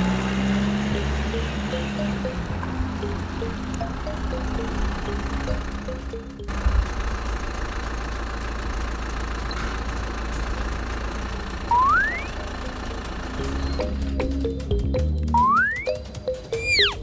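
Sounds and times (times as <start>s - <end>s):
rising whistle-like glide: 11.7s - 12.3s.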